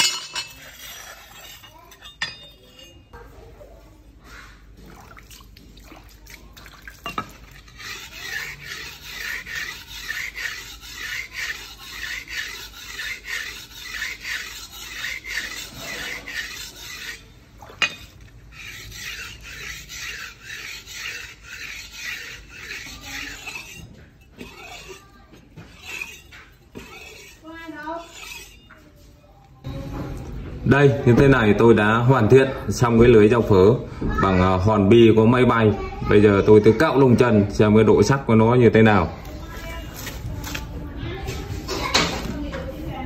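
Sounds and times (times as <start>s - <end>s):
knife blade strokes on abrasive: 7.7s - 28.8s.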